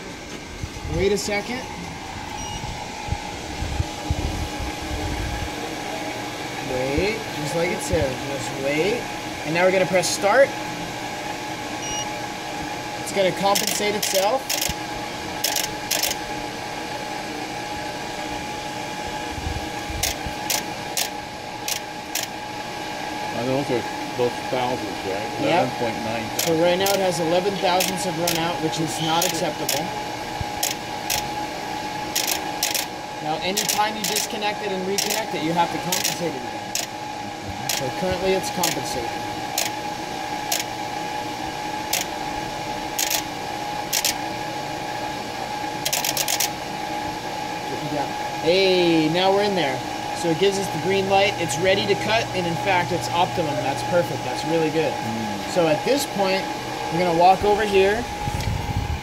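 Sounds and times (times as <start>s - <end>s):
brake lathe spinning rotor: 13.0s - 14.8s, 15.4s - 16.4s, 19.9s - 40.8s, 41.7s - 43.3s, 43.9s - 44.3s, 45.8s - 46.6s.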